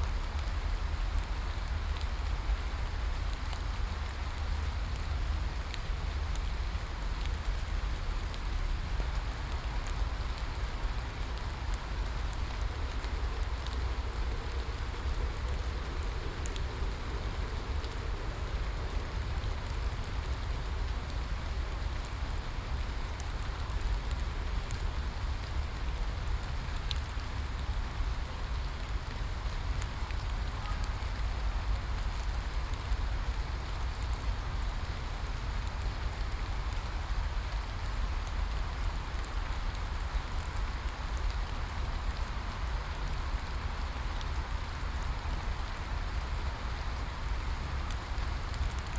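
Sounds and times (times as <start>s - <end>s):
raindrop ticks: 0.0s - 48.9s
steady rain hiss: 0.0s - 48.9s.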